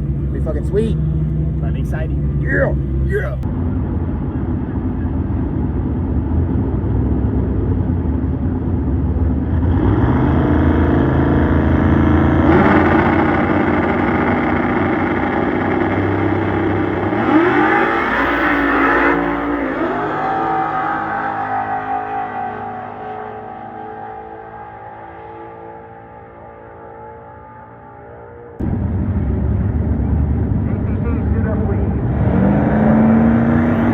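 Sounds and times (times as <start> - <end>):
car engines running: 0.0 - 33.9
engine revving: 9.3 - 33.9.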